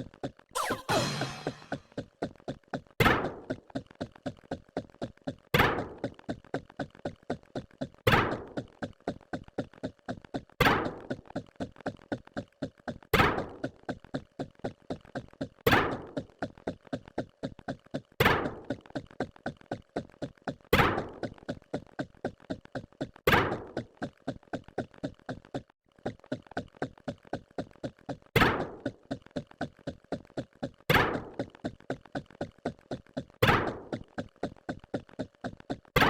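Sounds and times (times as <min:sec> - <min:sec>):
rapid quiet ticks: 0:11.2 - 0:36.0.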